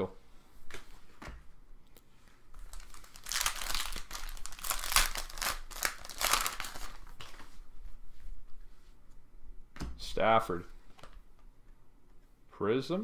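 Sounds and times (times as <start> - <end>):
foil wrapper crinkling: 2.6 - 7.4.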